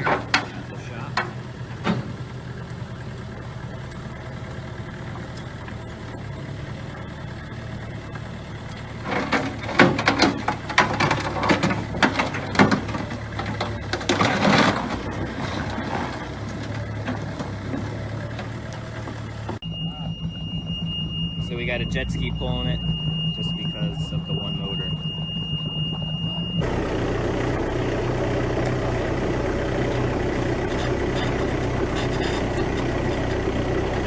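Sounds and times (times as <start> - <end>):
engine idling: 0.0 - 34.0
loud clattering knocks: 9.1 - 15.1.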